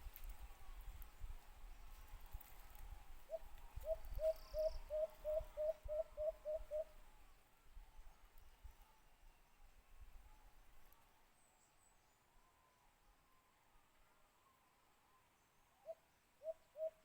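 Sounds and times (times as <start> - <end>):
dove cooing: 3.3 - 7.0, 15.8 - 17.0.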